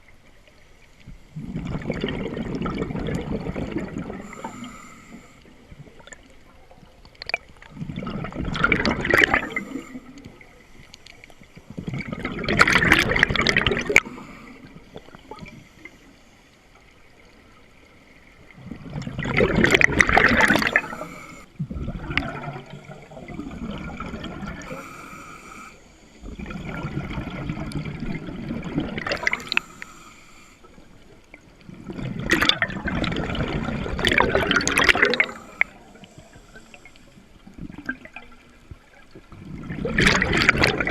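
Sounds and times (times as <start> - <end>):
diver exhaling bubbles underwater: 1.3 - 4.8, 7.3 - 10.1, 11.8 - 15.6, 18.6 - 25.2, 26.2 - 29.7, 31.7 - 35.8, 39.3 - 40.9.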